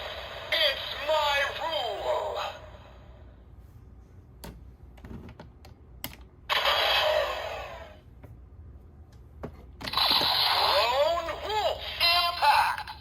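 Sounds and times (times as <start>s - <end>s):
toy speaker sound effect: 6.5s - 8.0s, 9.9s - 13.0s.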